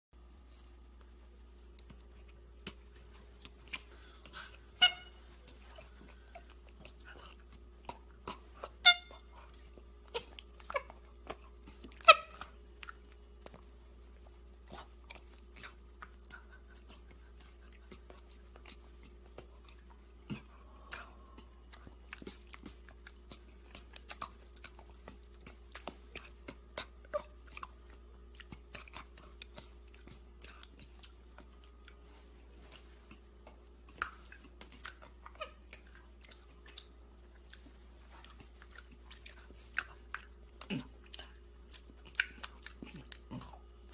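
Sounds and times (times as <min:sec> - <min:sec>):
monkey chewing and smacking: 0:00.4 - 0:43.9.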